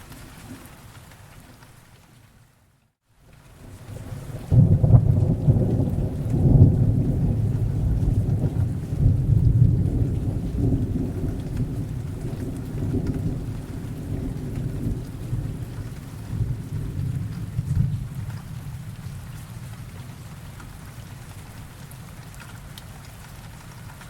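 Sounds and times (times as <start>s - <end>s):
steady rain: 0.0s - 24.0s
thunder rolling: 4.0s - 19.9s.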